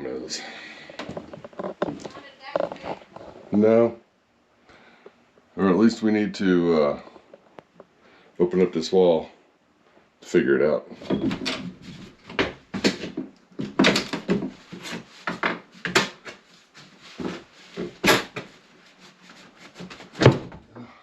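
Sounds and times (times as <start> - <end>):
wall panel being pried: 11.0 - 16.4.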